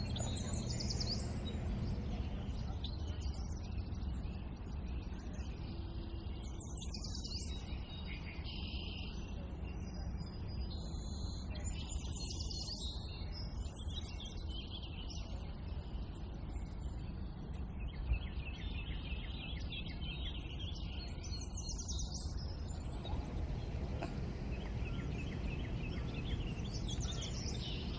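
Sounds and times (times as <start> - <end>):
low background rumble: 0.0 - 3.0, 22.4 - 27.9
small birds chirping: 0.0 - 27.9.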